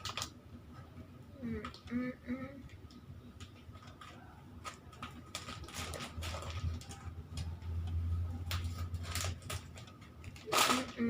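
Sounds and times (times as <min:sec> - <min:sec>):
plastic packets crinkling: 0:00.0 - 0:00.4, 0:03.4 - 0:11.0.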